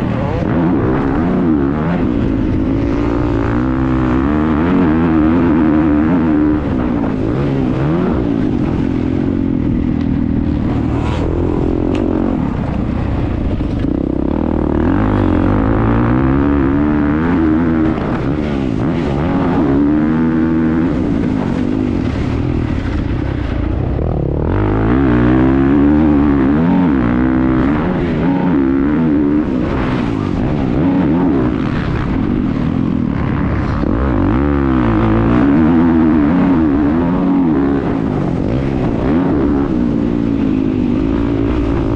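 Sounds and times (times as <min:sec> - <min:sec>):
motocross bike engine revving: 0:00.0 - 0:41.9.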